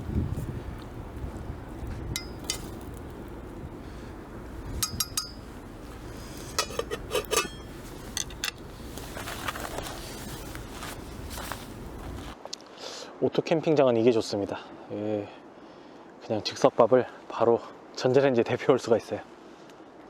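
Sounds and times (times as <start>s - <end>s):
dishes and utensils clinking: 2.2s - 3.0s, 4.6s - 12.2s.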